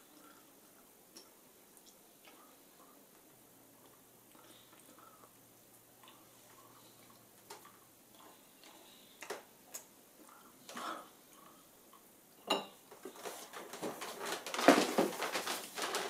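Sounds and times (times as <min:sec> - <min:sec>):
clothing rustling: 0:12.9 - 0:16.0.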